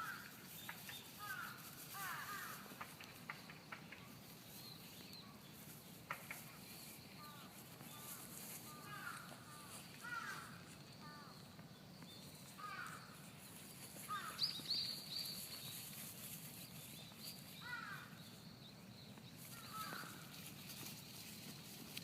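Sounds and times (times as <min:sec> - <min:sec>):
crows cawing: 0:00.0 - 0:00.4, 0:01.2 - 0:02.9, 0:08.7 - 0:11.3, 0:12.6 - 0:13.2, 0:14.0 - 0:14.4, 0:17.6 - 0:18.1, 0:19.5 - 0:20.3.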